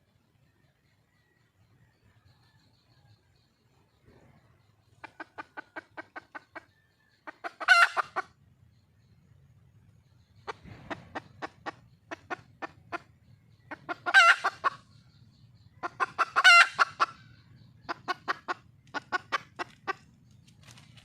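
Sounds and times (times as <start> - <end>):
hen clucking: 4.0 - 8.4, 10.2 - 20.5.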